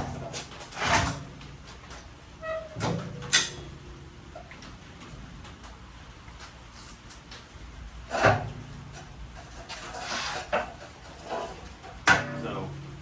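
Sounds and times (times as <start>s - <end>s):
generator scraping on metal ramp: 8.1s - 11.8s.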